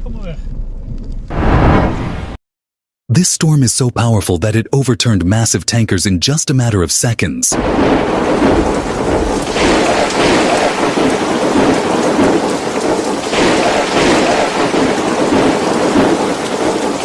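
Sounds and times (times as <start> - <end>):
heavy rain storm: 7.5 - 17.0.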